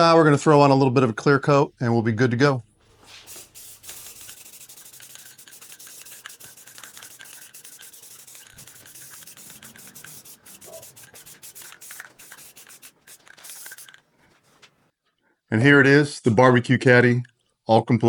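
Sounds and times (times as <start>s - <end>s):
hand rubbing wood: 2.6s - 14.8s.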